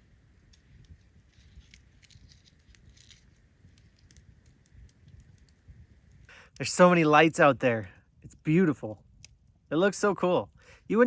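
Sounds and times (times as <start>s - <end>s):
campfire crackling and popping: 0.1s - 11.0s.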